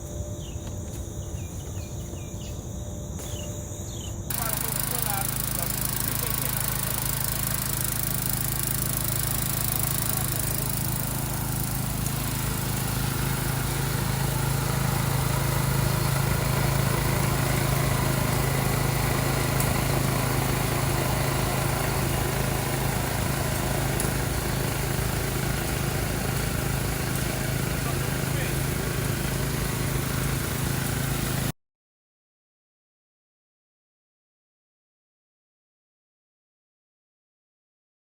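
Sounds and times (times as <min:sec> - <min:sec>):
small engine running: 0:00.0 - 0:31.5.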